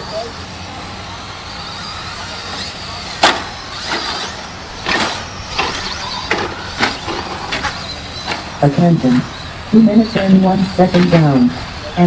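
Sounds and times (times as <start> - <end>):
rc truck motors whining: 0.0 - 12.0
sharp knocks of trucks hitting: 2.6 - 8.6.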